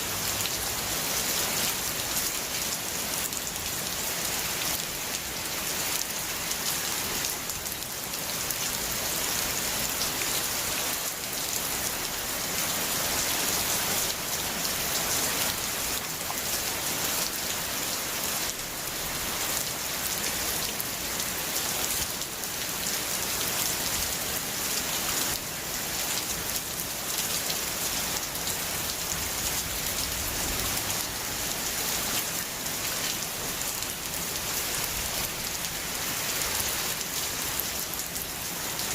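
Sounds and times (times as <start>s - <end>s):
heavy rain hiss: 23.7s - 38.9s.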